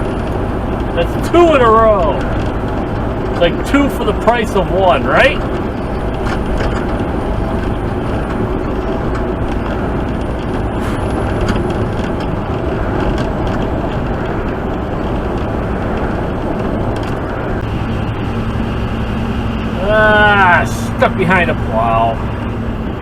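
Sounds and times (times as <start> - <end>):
diesel engine running: 0.0 - 23.0
tyres on the road: 0.0 - 23.0.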